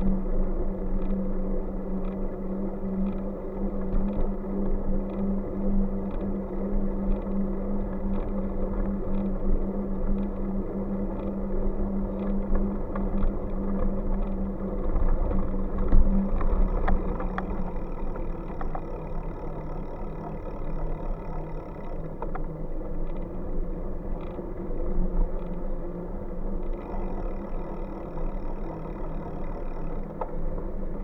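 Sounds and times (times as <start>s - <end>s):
bike riding rumble: 0.0s - 31.0s
bike clicks and knocks: 15.7s - 22.5s.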